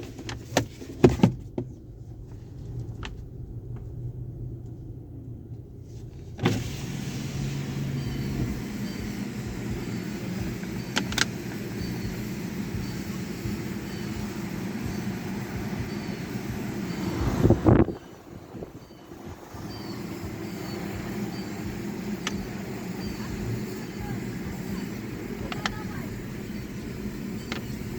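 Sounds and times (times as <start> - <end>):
car wash equipment humming: 0.0 - 27.9
loud steady hiss: 6.4 - 17.6, 19.1 - 27.9.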